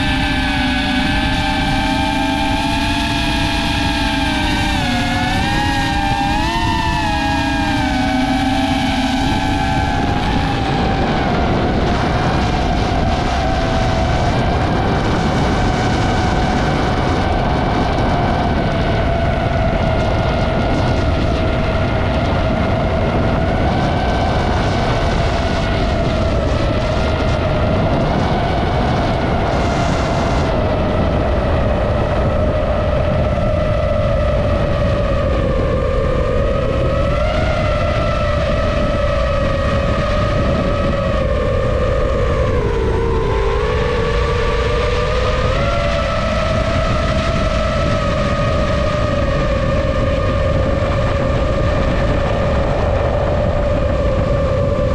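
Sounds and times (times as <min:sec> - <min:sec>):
drone propellers whining: 0:00.0 - 0:54.9
wind rushing: 0:00.0 - 0:54.9.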